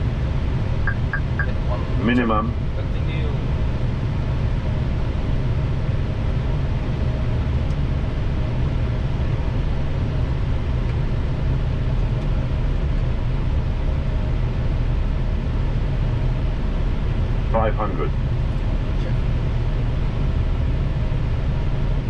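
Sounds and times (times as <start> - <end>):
faint steady hum: 0.0 - 8.0
aircraft cockpit low rumble: 0.0 - 22.0.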